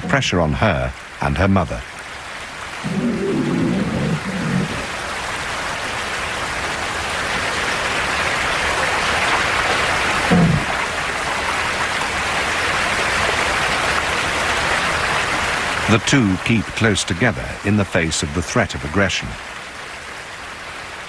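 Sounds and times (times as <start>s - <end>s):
river water rushing: 0.0s - 16.0s
low falling call: 2.8s - 5.1s, 10.3s - 10.8s.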